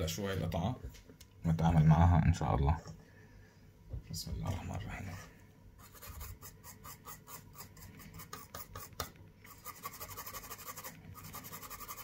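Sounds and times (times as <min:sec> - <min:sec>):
small hand tool scraping: 0:05.8 - 0:12.0.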